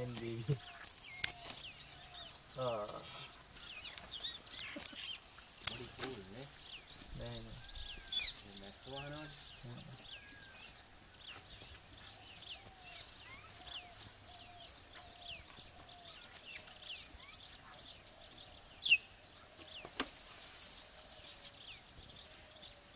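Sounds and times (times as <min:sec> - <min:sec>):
birds chirping: 0:00.0 - 0:22.9
lower repeated bird call: 0:11.6 - 0:22.9.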